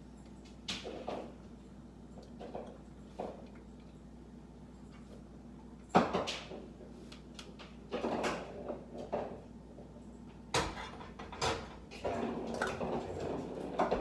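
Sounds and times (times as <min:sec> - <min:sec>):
kitchen things knocking and clattering: 0:10.5 - 0:14.0.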